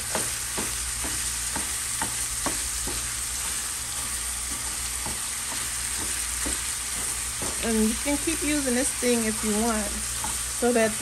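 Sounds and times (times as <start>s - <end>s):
masher tapping and scraping pan: 0.0s - 8.2s
sausage sizzling in a frying pan: 0.0s - 11.0s.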